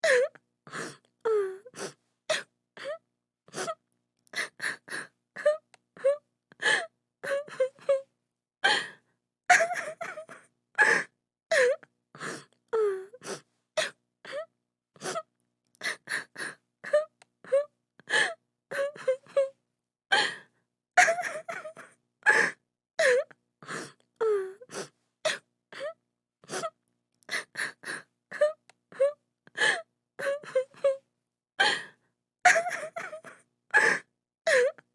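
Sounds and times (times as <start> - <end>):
woman sobbing and wailing: 9.5 - 11.8, 21.0 - 23.3, 27.4 - 31.0, 32.5 - 34.8.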